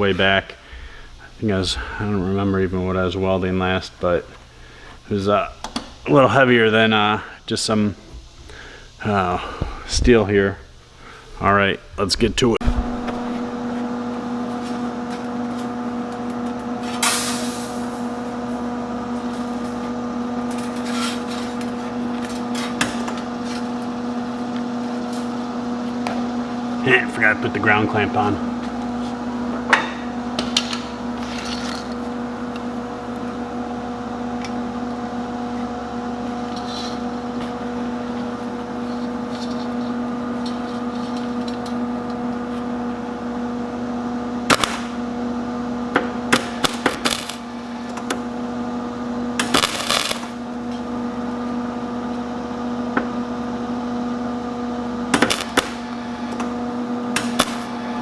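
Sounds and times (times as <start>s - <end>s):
welder humming: 8.4s - 58.0s
welding crackling bursts: 44.4s - 45.2s, 46.0s - 48.3s, 49.2s - 50.7s, 55.1s - 56.4s, 57.1s - 58.0s.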